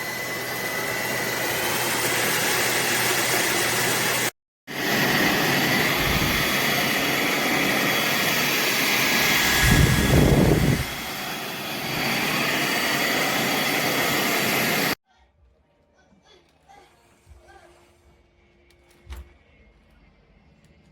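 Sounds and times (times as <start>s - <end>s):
stick vacuum whining: 0.0s - 15.0s.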